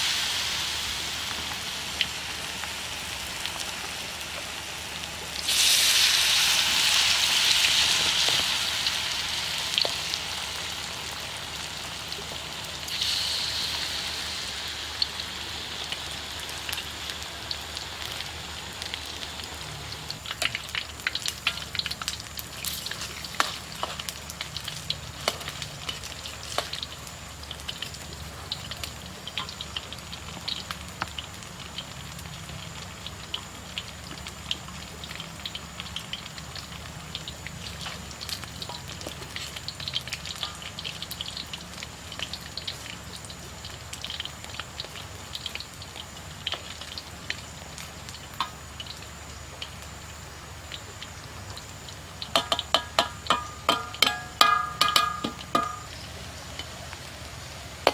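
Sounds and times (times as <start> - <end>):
food sizzling in hot oil: 0.0 - 57.9
oil popping: 50.7 - 57.9.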